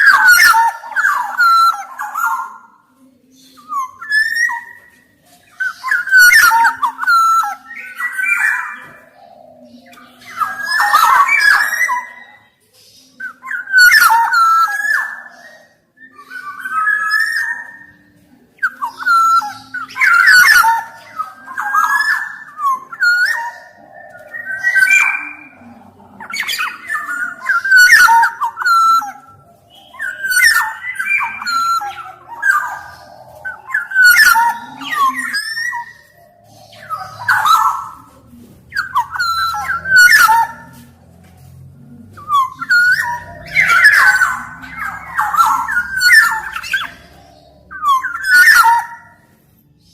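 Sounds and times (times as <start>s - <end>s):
bird singing fluty whistles: 42.2s - 49.2s.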